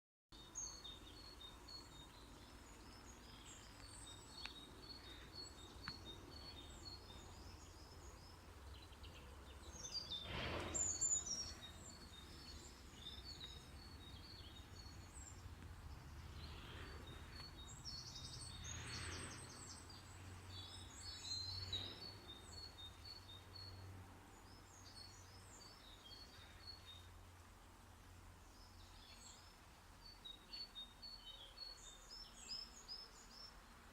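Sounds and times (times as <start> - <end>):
small birds chirping and trilling: 0.4 - 33.9
steady low rumble: 10.3 - 21.1.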